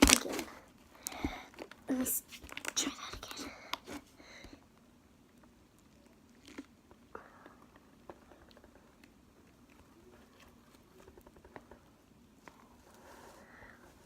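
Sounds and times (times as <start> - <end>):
slime clicking and crackling: 0.0 - 3.8.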